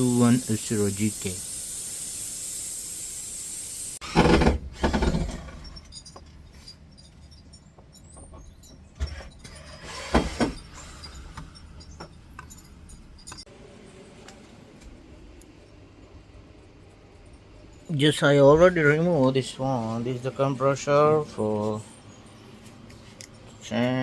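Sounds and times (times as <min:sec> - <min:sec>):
gas hissing: 0:00.0 - 0:04.4.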